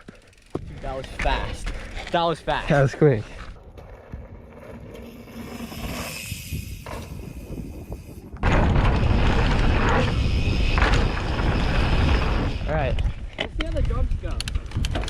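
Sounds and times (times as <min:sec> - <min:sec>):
wind buffeting microphone: 0:03.4 - 0:15.0.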